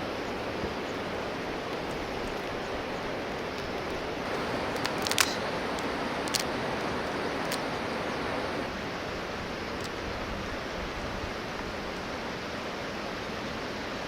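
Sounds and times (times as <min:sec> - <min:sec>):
steady rushing outdoor noise: 0:00.0 - 0:14.0
sharp clicks or snaps: 0:04.7 - 0:07.7.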